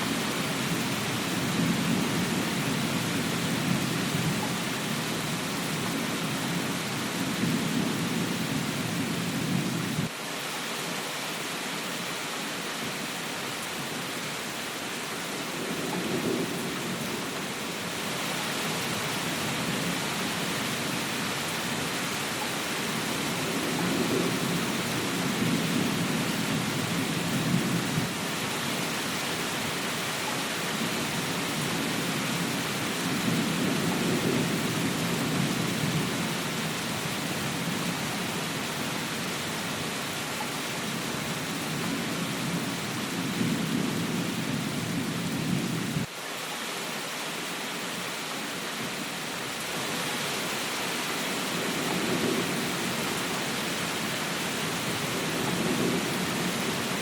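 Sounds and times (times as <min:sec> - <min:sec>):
steady rain: 0:00.0 - 0:57.0
low rolling thunder: 0:15.5 - 0:17.5, 0:21.7 - 0:28.8, 0:31.6 - 0:38.3, 0:54.1 - 0:57.0.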